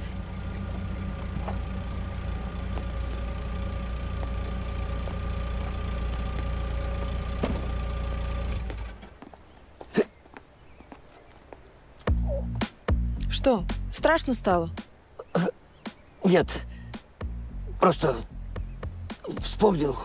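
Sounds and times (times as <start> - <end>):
car engine idling: 0.0 - 9.3.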